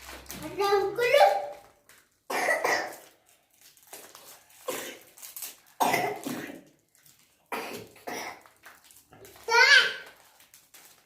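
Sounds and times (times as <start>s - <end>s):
child coughing: 2.3s - 3.0s, 4.6s - 5.2s, 5.8s - 6.7s, 7.5s - 8.5s.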